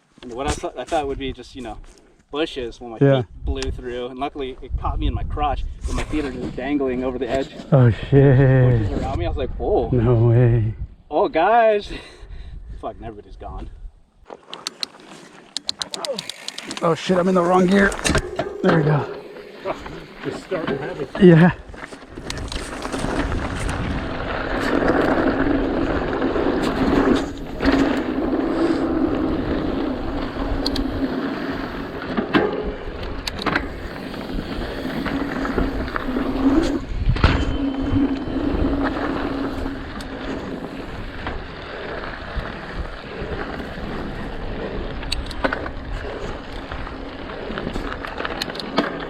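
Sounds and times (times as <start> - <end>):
wind on microphone: 3.1 - 6.8, 7.8 - 11.1, 21.5 - 32.0, 32.6 - 48.2
bike tyres on dirt: 13.6 - 49.0
bike knocking and rattling: 14.3 - 21.1, 21.7 - 49.0.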